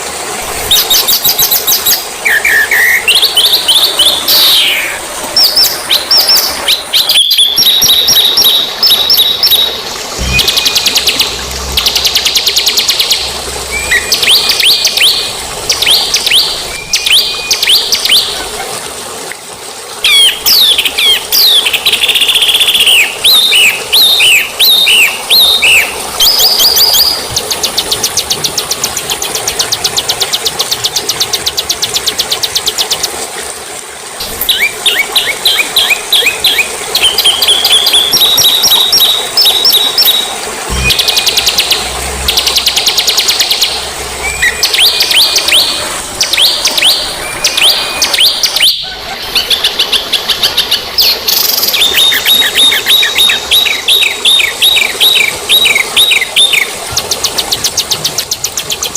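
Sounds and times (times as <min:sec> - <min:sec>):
songbirds singing: 0:00.7 - 0:18.4, 0:34.3 - 0:58.9.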